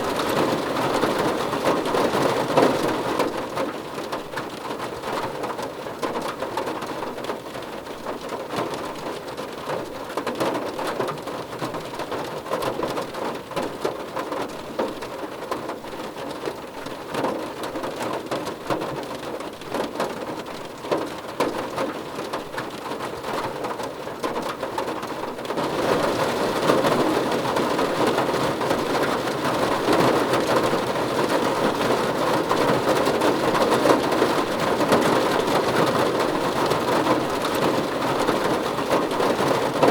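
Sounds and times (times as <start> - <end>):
rain on a car roof: 0.0 - 39.9.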